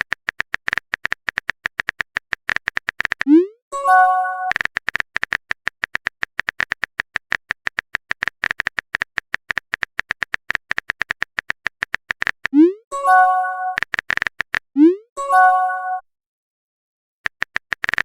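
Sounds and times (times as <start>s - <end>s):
phone keyboard typing clicks: 0.0s - 3.3s, 4.4s - 12.6s, 13.2s - 14.7s, 17.2s - 18.0s
message notification chime: 3.8s - 4.5s, 12.9s - 13.8s, 15.2s - 16.0s.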